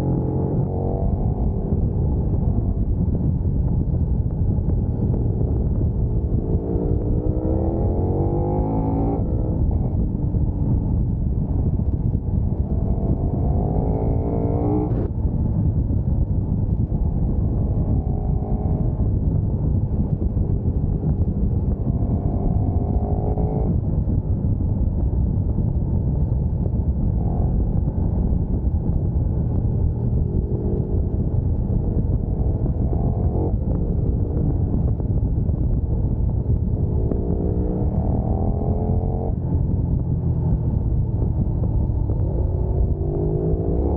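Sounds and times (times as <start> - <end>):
wind rushing on microphone: 0.0 - 43.9
motorcycle engine revving hard: 5.2 - 10.0, 12.6 - 15.1, 20.7 - 23.8, 36.7 - 39.4, 42.0 - 43.9.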